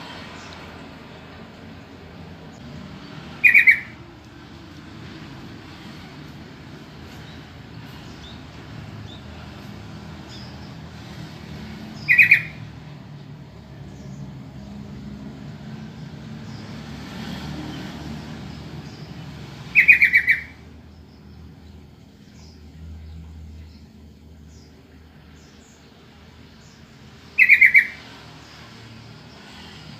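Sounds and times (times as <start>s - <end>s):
bird calling quick repeated notes: 3.4s - 4.0s, 12.0s - 12.6s, 19.7s - 20.6s, 27.4s - 28.0s.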